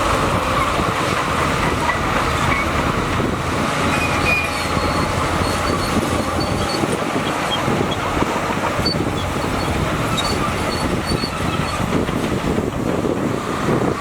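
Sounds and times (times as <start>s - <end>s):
diesel engine running: 0.0s - 14.0s
tracks clanking: 0.0s - 14.0s
short high squeaks: 4.0s - 8.0s, 8.8s - 11.8s.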